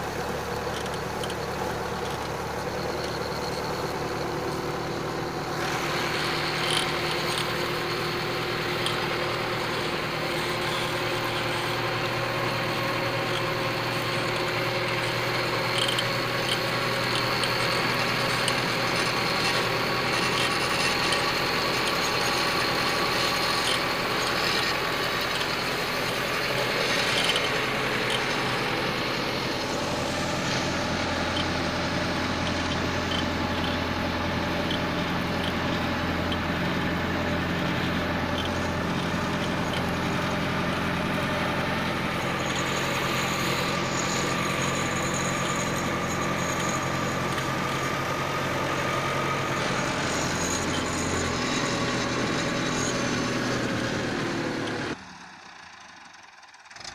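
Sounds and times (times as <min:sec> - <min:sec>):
deeper hum: 0:00.0 - 0:54.2
tractor diesel engine running: 0:00.0 - 0:56.9.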